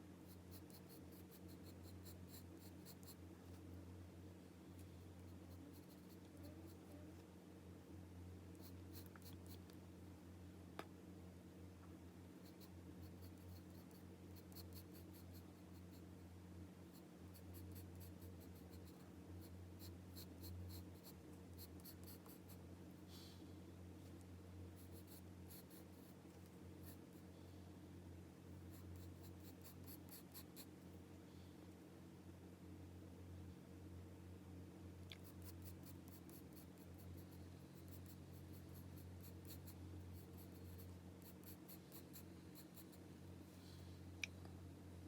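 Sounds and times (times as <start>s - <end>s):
steady low hum: 0.0s - 45.0s
pencil scratching on paper: 0.3s - 3.2s, 5.2s - 6.9s, 8.6s - 9.7s, 12.4s - 16.1s, 16.9s - 22.6s, 24.7s - 26.2s, 28.7s - 30.7s, 35.2s - 43.0s.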